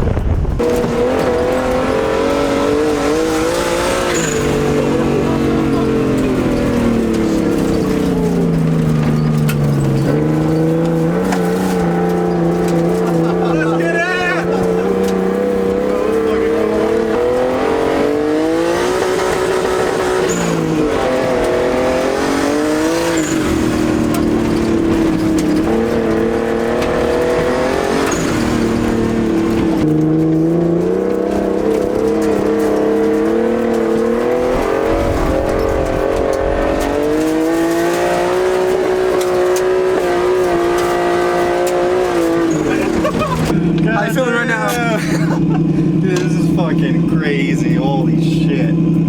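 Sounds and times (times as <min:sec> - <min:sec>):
car engine accelerating hard: 0:00.0 - 0:49.0.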